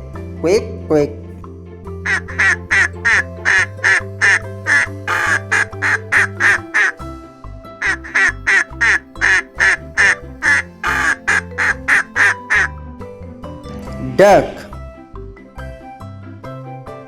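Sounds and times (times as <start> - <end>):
children's background music: 0.0 - 17.0
duck quacking rapidly: 2.1 - 7.0, 7.8 - 12.7.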